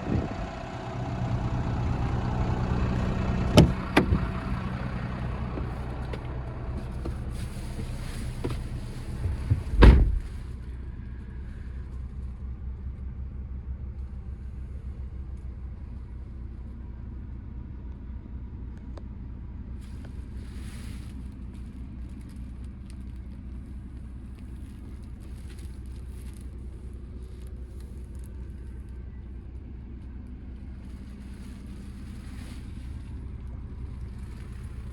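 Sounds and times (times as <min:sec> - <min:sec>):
truck diesel engine idling: 0:00.0 - 0:34.9
loud thump: 0:03.6 - 0:04.5, 0:09.2 - 0:10.5.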